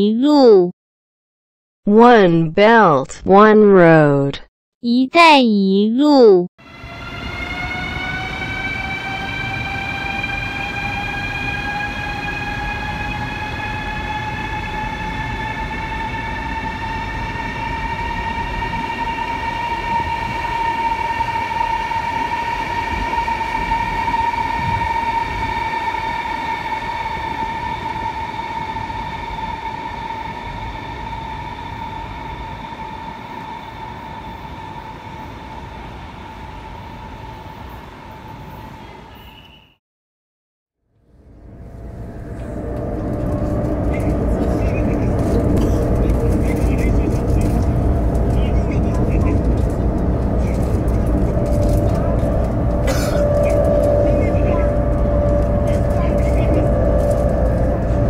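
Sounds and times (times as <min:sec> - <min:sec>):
electric train drive whine: 0:06.6 - 0:39.0, 0:40.9 - 0:58.0
train running gear rumble: 0:41.2 - 0:58.0.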